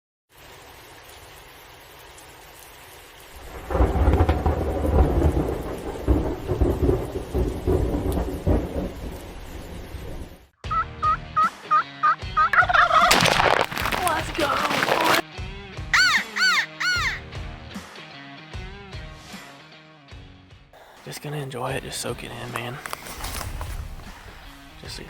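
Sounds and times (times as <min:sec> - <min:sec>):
rain hiss: 0:00.3 - 0:10.5, 0:20.8 - 0:25.0
rolling thunder: 0:03.4 - 0:10.5
turkey gobbling: 0:10.6 - 0:13.9, 0:16.0 - 0:17.2.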